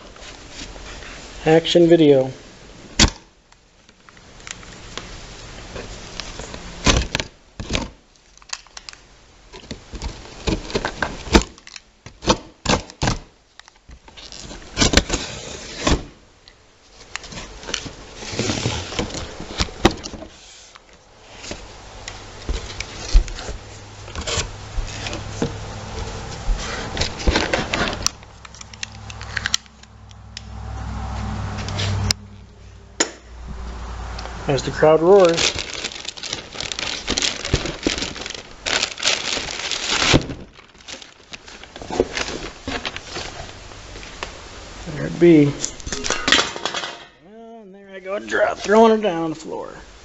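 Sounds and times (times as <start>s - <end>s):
cardboard box being unpacked: 9.6s - 16.2s, 17.0s - 21.8s, 22.5s - 29.6s, 34.7s - 44.2s.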